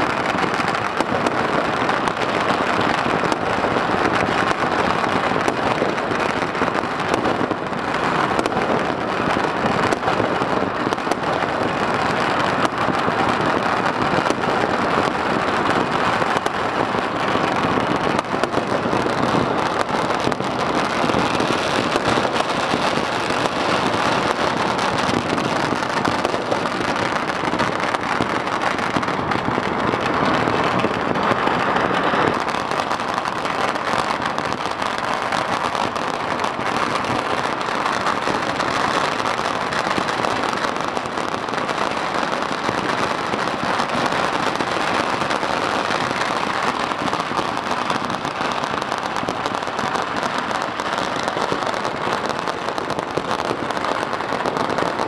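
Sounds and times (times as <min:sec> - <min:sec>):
fireworks crackling: 0:00.0 - 0:55.0.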